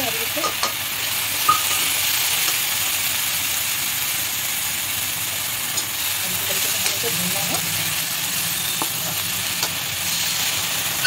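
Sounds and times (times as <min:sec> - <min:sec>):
onions sizzling in hot oil: 0:00.0 - 0:11.0
metal spatula tapping pan: 0:00.4 - 0:00.8.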